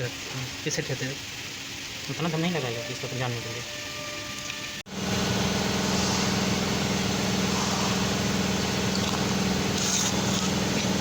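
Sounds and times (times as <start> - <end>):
pickup truck engine idling: 4.9 - 11.0.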